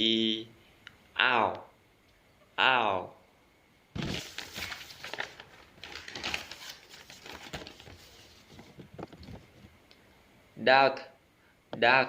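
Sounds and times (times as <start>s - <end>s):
rustling and crinkling handling noise: 4.0s - 9.8s.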